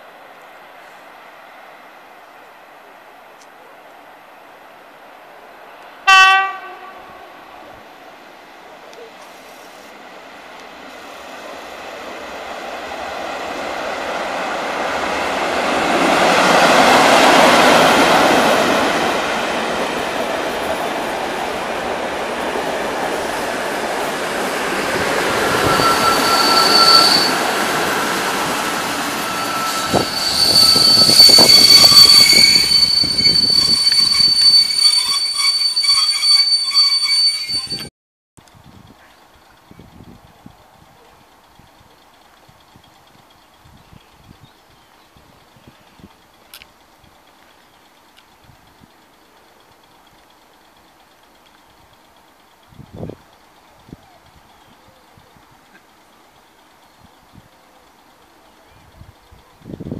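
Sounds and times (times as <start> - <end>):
train passing on tracks: 0.0 - 59.9
train wheels squealing: 24.3 - 37.9.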